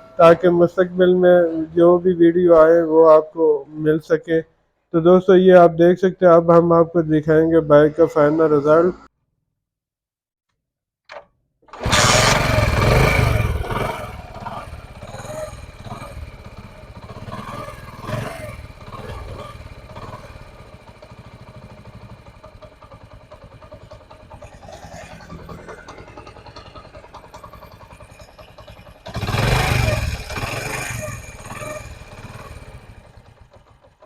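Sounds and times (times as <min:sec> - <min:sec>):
motorcycle engine running: 0:11.8 - 0:34.0.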